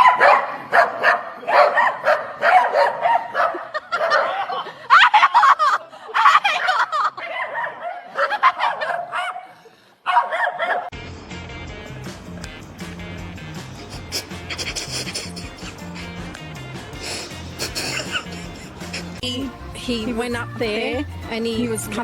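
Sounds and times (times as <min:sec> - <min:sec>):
dog barking and yowling: 0:00.0 - 0:05.6, 0:06.2 - 0:10.9.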